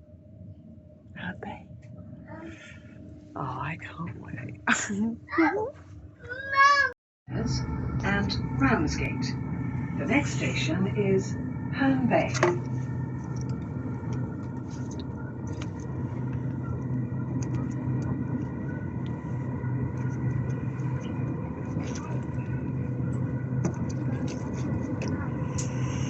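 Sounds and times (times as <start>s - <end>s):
electric train rumbling: 7.3s - 26.0s.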